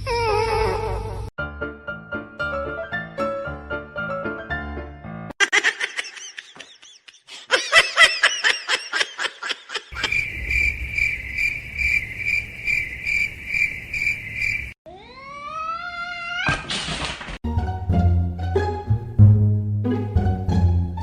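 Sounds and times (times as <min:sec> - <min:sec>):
pulsing insect chirp: 0:09.9 - 0:14.8
rapid high chirping: 0:09.9 - 0:14.8.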